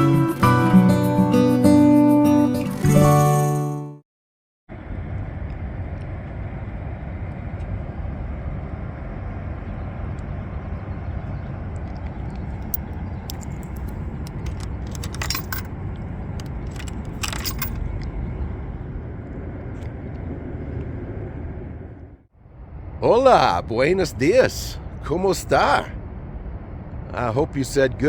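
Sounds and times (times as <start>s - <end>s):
low rumbling noise: 4.7s - 28.0s
metallic jingling: 12.4s - 18.0s.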